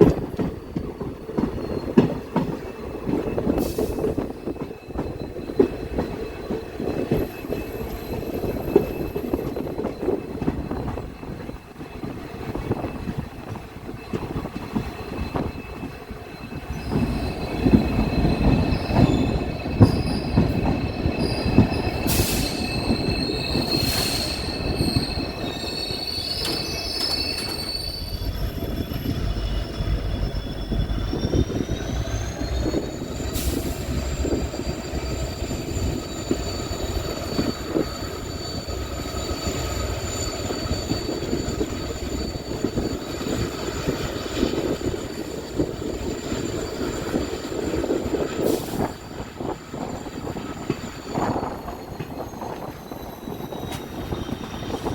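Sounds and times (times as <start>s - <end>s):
train wheels rumbling on track: 0.0s - 54.9s
high-pitched wheel squeal: 2.7s - 54.9s.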